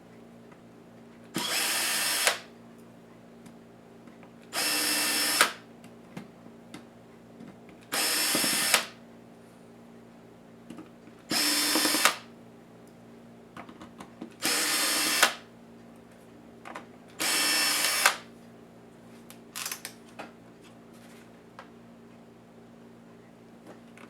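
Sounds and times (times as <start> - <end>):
power screwdriver spinning: 17.2 - 18.2.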